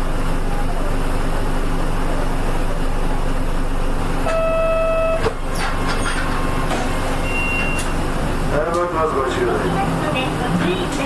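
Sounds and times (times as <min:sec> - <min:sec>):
bus diesel engine rumbling: 0:00.0 - 0:11.0
onboard beep: 0:04.2 - 0:05.3, 0:07.2 - 0:07.9
short high tone: 0:04.2 - 0:05.4.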